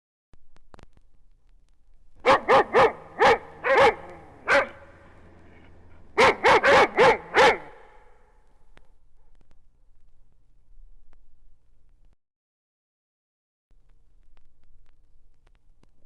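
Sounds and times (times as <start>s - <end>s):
dog barking: 2.2s - 8.2s.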